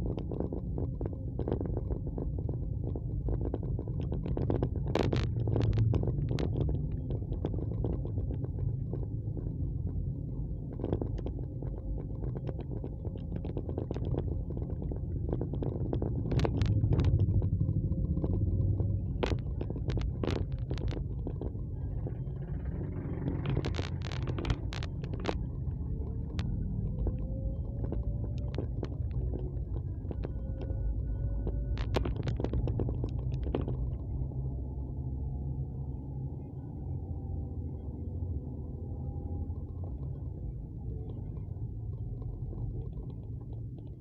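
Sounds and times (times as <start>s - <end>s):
wind and road noise: 0.0s - 44.0s
faint engine tone: 14.2s - 44.0s
sharp clicks: 15.3s - 30.7s.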